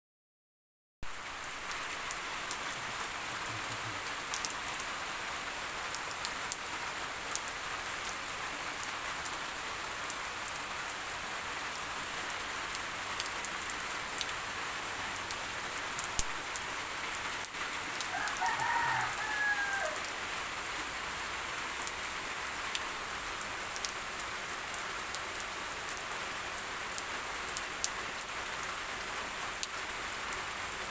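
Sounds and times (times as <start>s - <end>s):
raindrops ticking sharply: 1.0s - 9.3s, 10.0s - 28.7s
steady rain falling: 1.0s - 30.9s.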